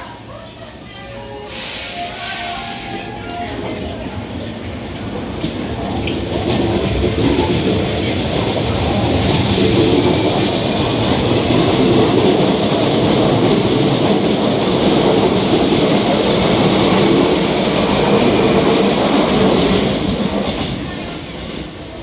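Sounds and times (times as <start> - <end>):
electric train rumbling past: 0.0 - 22.0.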